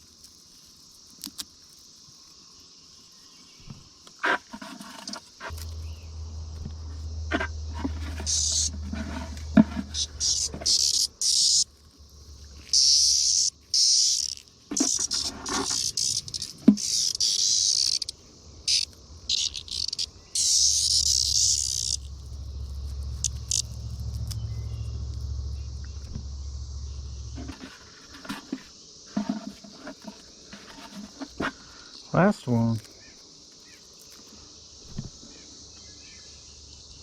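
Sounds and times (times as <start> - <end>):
cicadas buzzing in bursts: 0.0 - 37.0
faint cicada chorus: 0.0 - 37.0
low rumble: 5.5 - 12.7, 18.2 - 27.7.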